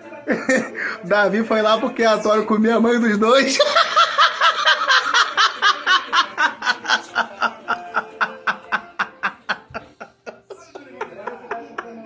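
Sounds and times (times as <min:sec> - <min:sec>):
man laughing: 0:03.5 - 0:12.0.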